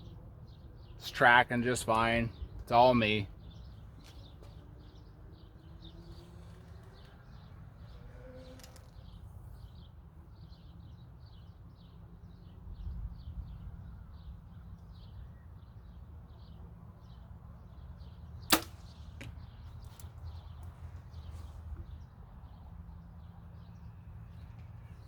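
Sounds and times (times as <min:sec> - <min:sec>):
bow string crack: 0:18.5 - 0:20.8.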